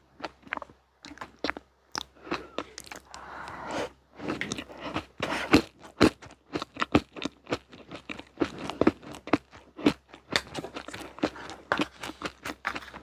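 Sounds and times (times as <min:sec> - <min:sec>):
crunchy snack chewing: 0:04.2 - 0:13.0.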